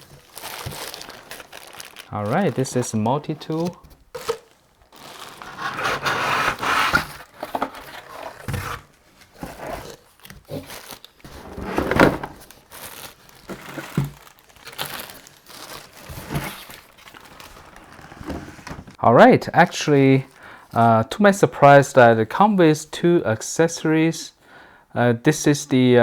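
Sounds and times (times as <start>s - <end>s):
packaging crinkling and rustling: 0.0s - 19.0s.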